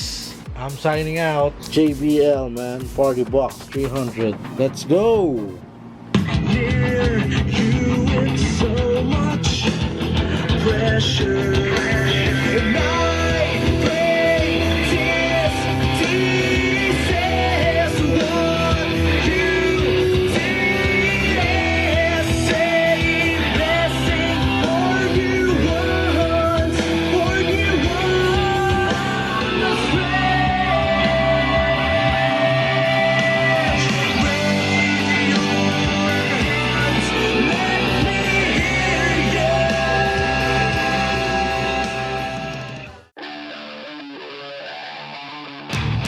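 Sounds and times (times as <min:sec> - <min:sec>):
rock song with singing: 0:00.0 - 0:46.0.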